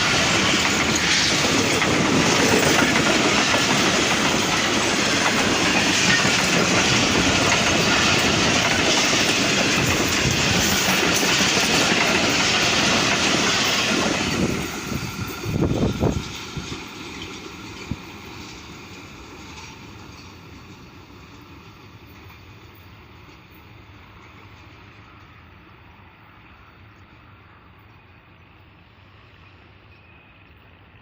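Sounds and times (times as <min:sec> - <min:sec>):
wheels clattering over rail joints: 0:00.0 - 0:20.8
train passing at high speed: 0:00.0 - 0:31.0.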